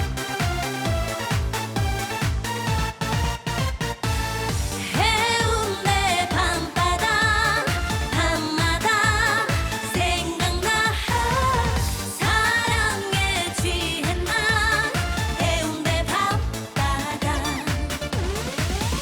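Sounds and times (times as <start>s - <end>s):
dance backing track: 0.0s - 19.0s
woman singing: 4.8s - 18.0s.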